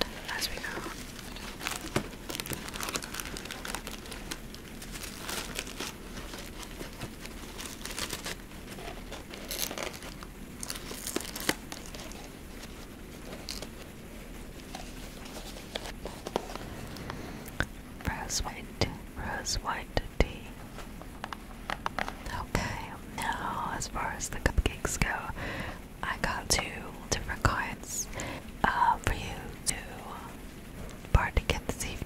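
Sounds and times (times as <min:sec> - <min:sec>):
packaging crinkling and tearing: 0:00.0 - 0:16.9.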